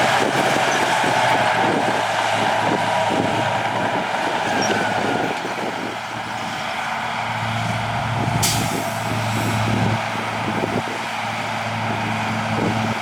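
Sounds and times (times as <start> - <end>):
heavy diesel machinery engine: 0.0 - 13.0
short sharp air hiss: 8.4 - 9.6.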